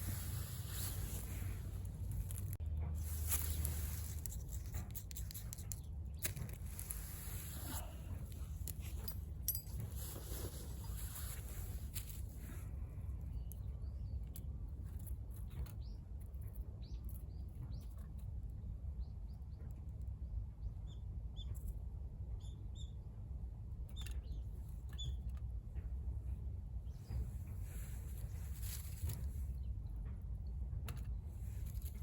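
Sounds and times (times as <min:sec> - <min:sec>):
wood fire crackling: 0:00.0 - 0:08.8.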